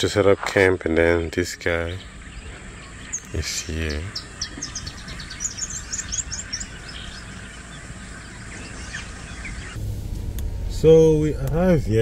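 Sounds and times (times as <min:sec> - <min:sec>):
low background rumble: 0:00.8 - 0:12.0
bird chirping: 0:01.0 - 0:10.0.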